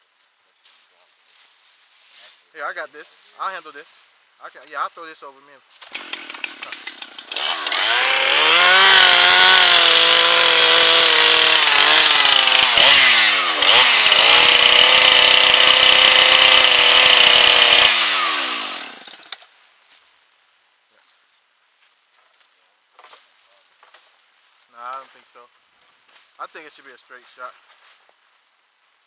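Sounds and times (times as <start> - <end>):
chainsaw cutting wood: 5.8 - 19.4.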